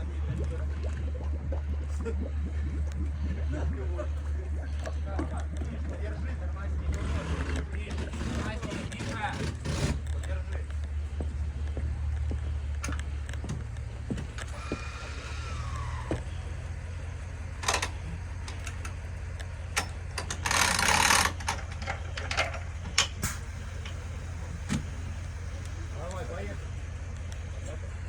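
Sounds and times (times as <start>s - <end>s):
engine humming: 0.0s - 28.0s
clicks and knocks: 17.5s - 25.7s.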